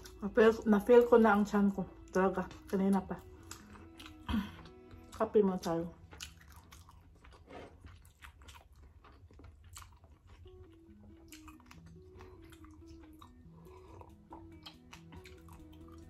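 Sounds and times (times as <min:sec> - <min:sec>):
quiet background music: 0:00.0 - 0:16.0
chewing and mouth clicks: 0:02.5 - 0:05.3, 0:06.0 - 0:16.0.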